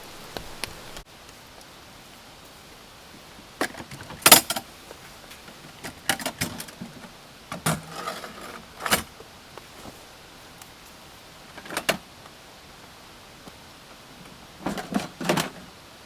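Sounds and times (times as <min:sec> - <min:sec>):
rain hissing: 0:00.0 - 0:16.0
knocks clatters and rattles: 0:05.7 - 0:09.1, 0:14.6 - 0:15.7.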